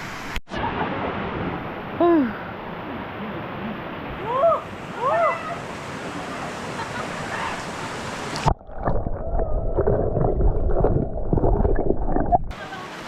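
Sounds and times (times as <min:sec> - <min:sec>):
stream rushing: 0:00.0 - 0:09.0
water sloshing and splashing: 0:08.2 - 0:12.6.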